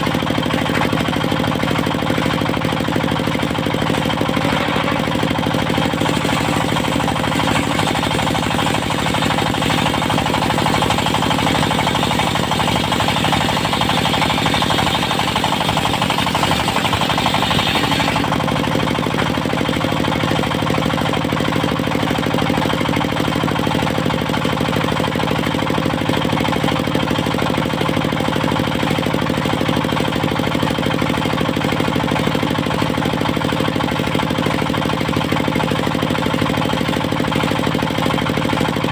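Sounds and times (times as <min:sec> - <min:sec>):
sawmill engine running: 0:00.0 - 0:38.9
high-pitched saw noise: 0:06.2 - 0:18.3.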